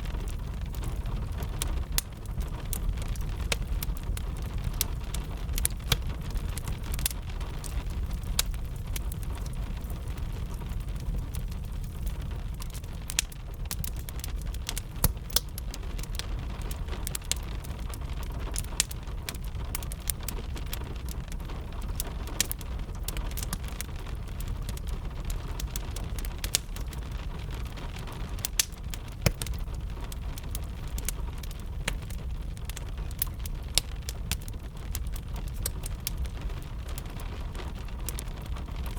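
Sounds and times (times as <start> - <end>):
steady rain: 0.0 - 38.9
wood fire crackling: 0.0 - 38.9.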